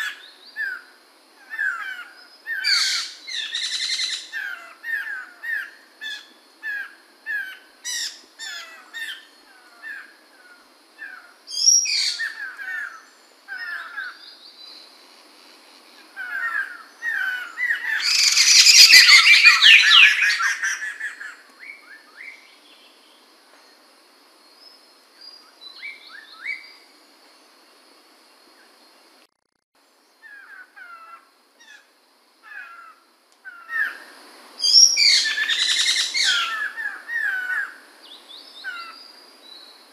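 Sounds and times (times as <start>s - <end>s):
bird chirping calls: 0.0s - 14.9s, 16.0s - 23.2s, 30.2s - 39.8s.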